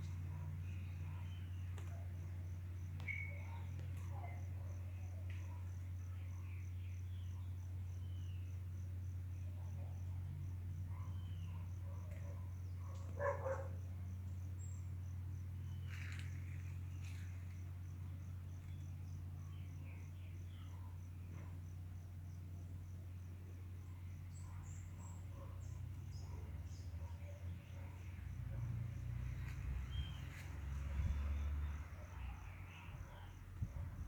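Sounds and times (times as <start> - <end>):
constant low hum: 0.0 - 34.0.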